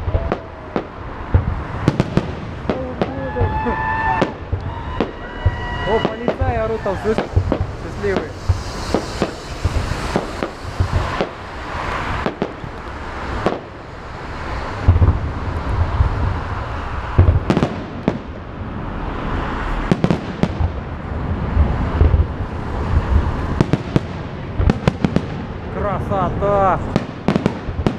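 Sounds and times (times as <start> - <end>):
continuous hiss: 0.0 - 18.6
fireworks bursting: 0.0 - 25.8, 26.8 - 27.9.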